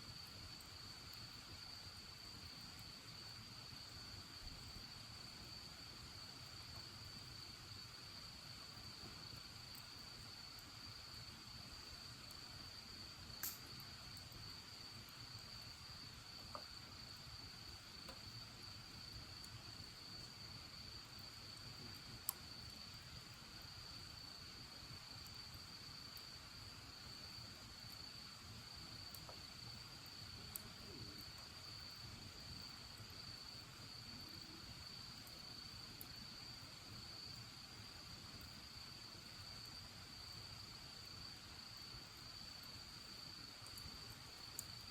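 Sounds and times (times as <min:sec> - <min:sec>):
insects chirring: 0:00.1 - 0:44.9
bonfire crackling pops: 0:11.4 - 0:26.7, 0:27.4 - 0:36.3, 0:43.6 - 0:44.9.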